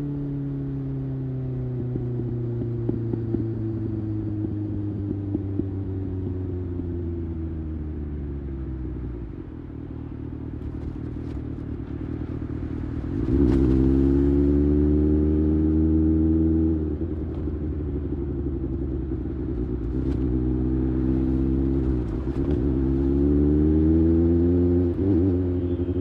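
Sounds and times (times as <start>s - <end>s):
motorcycle engine revving: 12.8s - 26.0s.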